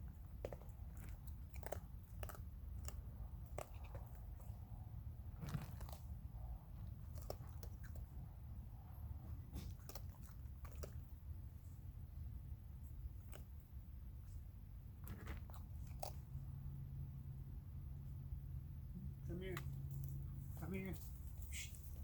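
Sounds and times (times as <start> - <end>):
raccoons crunching dry food: 0.0 - 8.4, 9.4 - 16.8.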